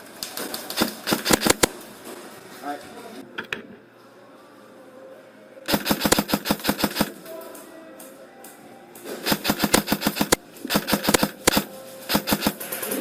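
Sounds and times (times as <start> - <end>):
airsoft rifle firing bursts: 0.8 - 1.8, 5.7 - 7.1, 9.3 - 12.7.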